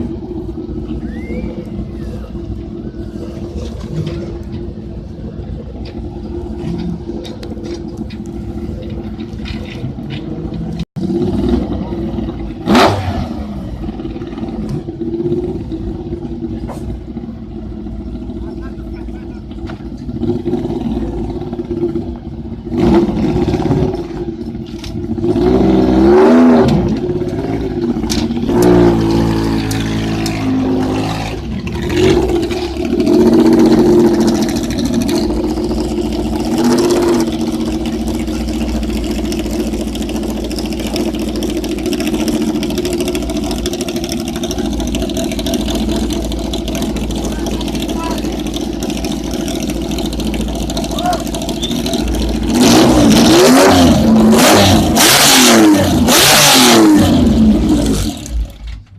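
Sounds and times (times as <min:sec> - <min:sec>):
rally car engine revving: 0:00.0 - 0:58.7.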